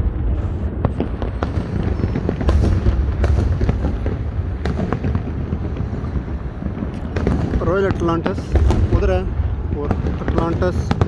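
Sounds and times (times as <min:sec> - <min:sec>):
distant fireworks rumble: 0:00.0 - 0:11.0
firework bangs and crackles: 0:00.0 - 0:11.0.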